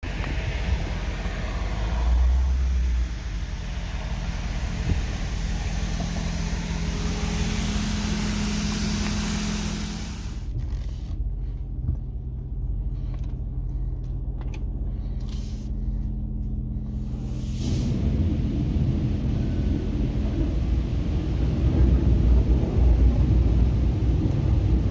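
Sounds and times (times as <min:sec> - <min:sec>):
loud hiss: 0:00.0 - 0:10.5
vehicle engine running: 0:00.0 - 0:24.9.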